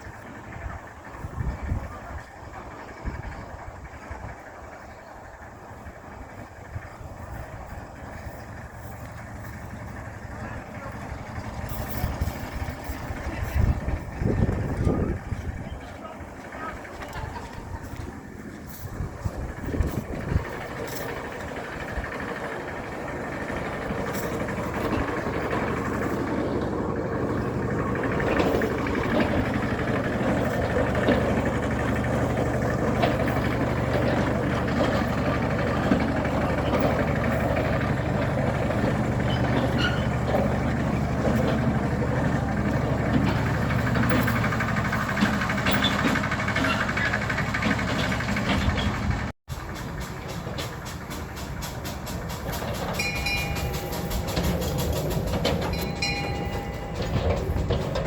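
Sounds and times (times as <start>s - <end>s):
engine humming: 0.0s - 58.0s
train wheels clicking on rails: 0.0s - 58.0s.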